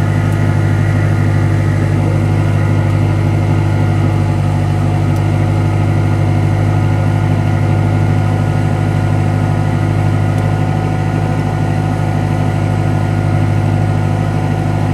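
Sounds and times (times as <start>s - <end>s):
car engine idling: 0.0s - 10.3s, 14.3s - 14.9s.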